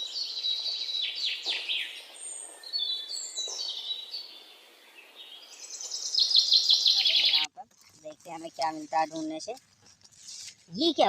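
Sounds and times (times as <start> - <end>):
birds chirping and singing: 0.0 - 7.5.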